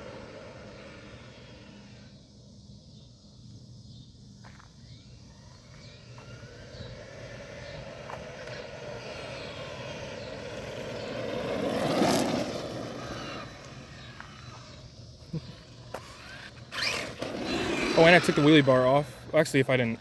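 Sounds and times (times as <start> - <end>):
car driving past: 6.0 - 14.9.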